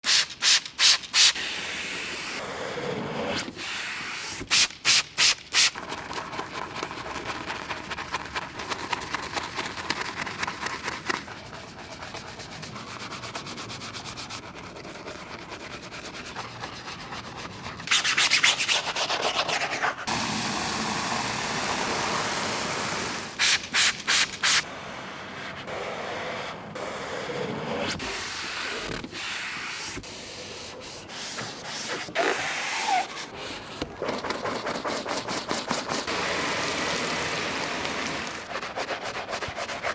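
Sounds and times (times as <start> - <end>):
scrubbing wet car bodywork: 5.7 - 24.6, 28.0 - 39.9
water spray hissing: 20.1 - 24.6, 36.0 - 38.5.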